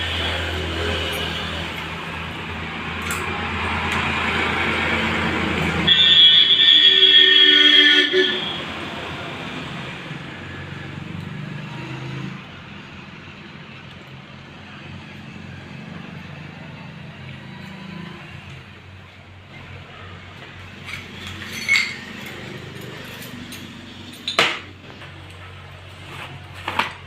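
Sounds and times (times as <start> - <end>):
metal parts clinking: 20.7 - 24.7.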